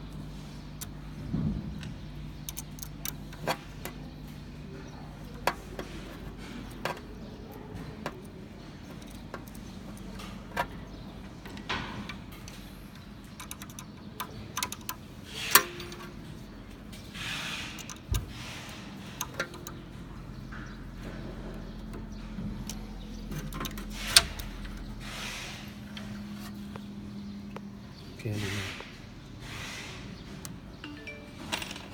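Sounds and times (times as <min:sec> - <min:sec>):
metal parts being handled: 0:13.2 - 0:20.1, 0:31.1 - 0:31.9.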